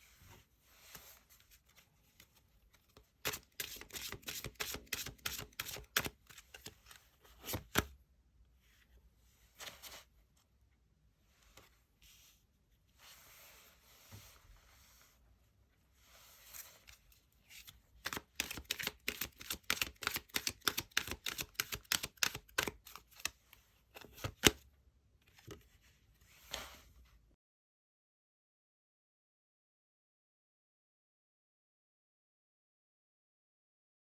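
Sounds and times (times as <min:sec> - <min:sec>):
cards rustling: 0:02.9 - 0:07.9, 0:16.6 - 0:23.4, 0:24.0 - 0:24.6
sharp card clicks: 0:18.1 - 0:23.3.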